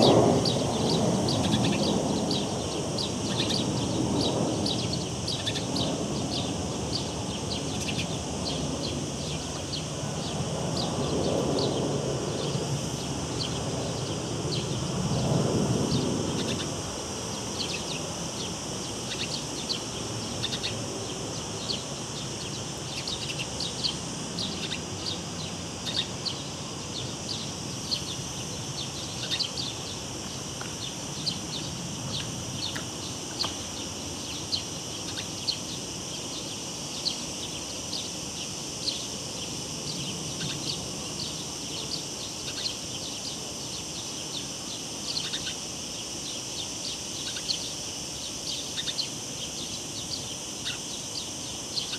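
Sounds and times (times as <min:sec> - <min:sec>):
bird chirps: 0:00.0 - 0:11.0, 0:17.5 - 0:28.2, 0:28.8 - 0:30.0, 0:39.9 - 0:45.6, 0:48.4 - 0:51.9
cicadas droning: 0:00.0 - 0:51.9.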